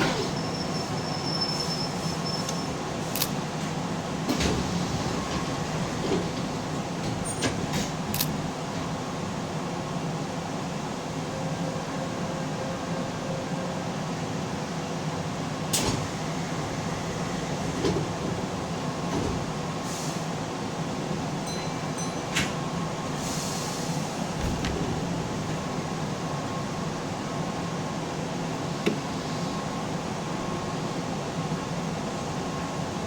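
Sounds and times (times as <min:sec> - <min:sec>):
train air conditioning hum: 0:00.0 - 0:33.0.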